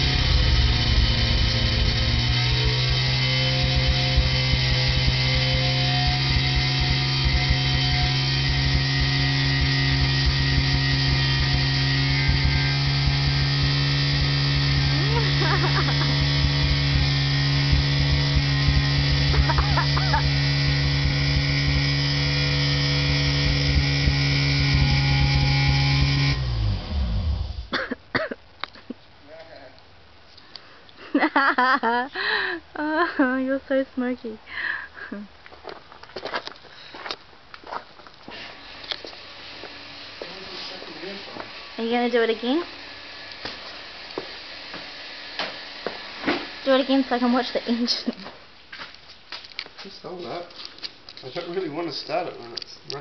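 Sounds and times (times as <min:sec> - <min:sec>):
rotary engine idling high: 0:00.0 - 0:27.7.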